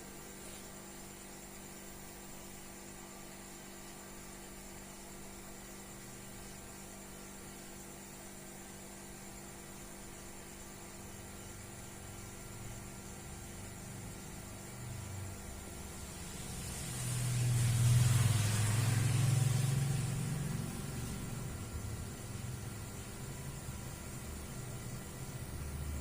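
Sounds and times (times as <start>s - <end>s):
even hiss: 15.1s - 24.4s.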